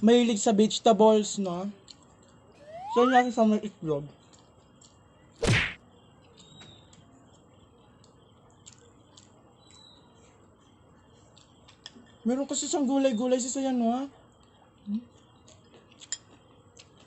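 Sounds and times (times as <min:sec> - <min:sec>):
loud thump: 0:05.4 - 0:05.8.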